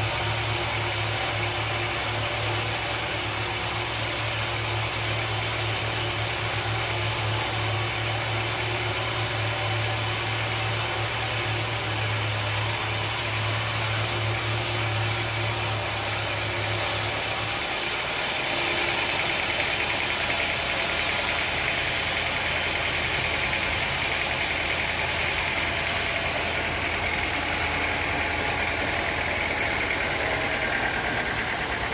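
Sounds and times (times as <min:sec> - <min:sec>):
sawmill machinery humming: 0:00.0 - 0:31.9
high steady whine: 0:12.6 - 0:31.9.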